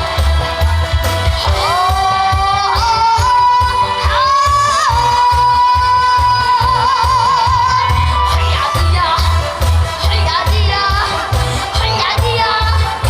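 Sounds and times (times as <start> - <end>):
backing track with bass beat: 0.0 - 13.0.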